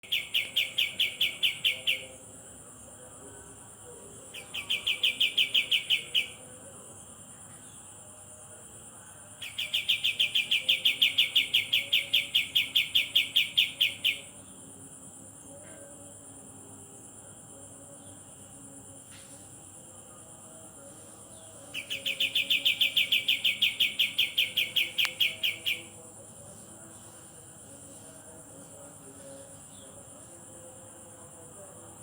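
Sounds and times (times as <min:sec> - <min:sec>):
steady high hiss: 0:18.5 - 0:32.0
bird trilling: 0:21.7 - 0:25.9.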